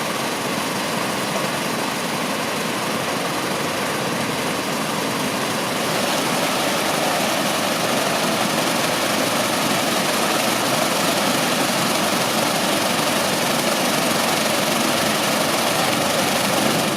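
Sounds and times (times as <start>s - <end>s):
water cascading in a water feature: 0.0s - 16.9s.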